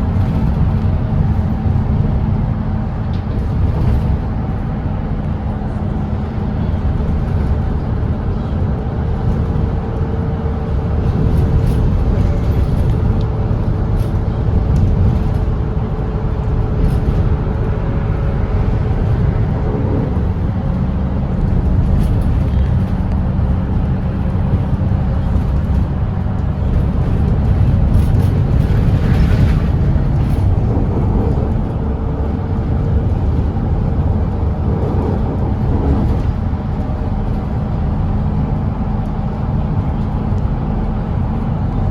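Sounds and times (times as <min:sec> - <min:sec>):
diesel bus engine: 0:00.0 - 0:41.9
road and tyre rumble: 0:00.0 - 0:41.9.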